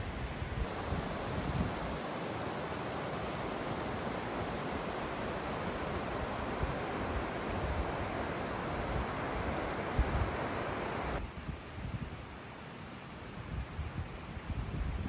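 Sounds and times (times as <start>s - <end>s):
fast-flowing water rushing: 0.7s - 11.2s
wind buffeting microphone: 13.5s - 15.0s.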